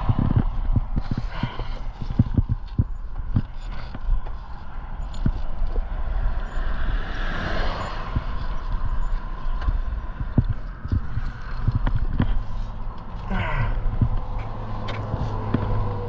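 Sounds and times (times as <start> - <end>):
constant low rumble: 0.0 - 16.0
vehicle passing by: 5.6 - 11.6, 14.2 - 16.0.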